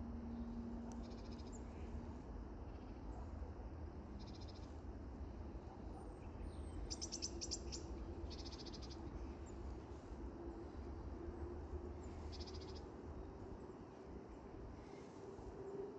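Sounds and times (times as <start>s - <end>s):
steady low rumble: 7.8s - 15.7s.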